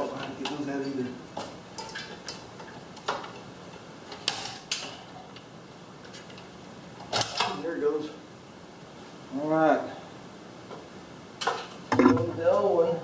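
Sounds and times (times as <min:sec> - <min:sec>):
sharp clicks and small knocks: 0:11.4 - 0:12.7.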